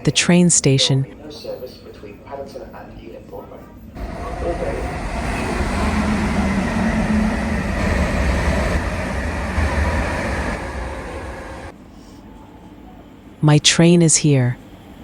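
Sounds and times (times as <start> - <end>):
train wheel and rail rumble: 3.6 - 11.8.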